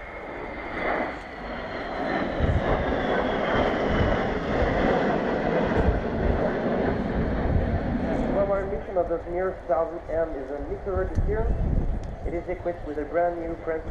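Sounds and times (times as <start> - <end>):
jet engines running: 0.0 - 13.9.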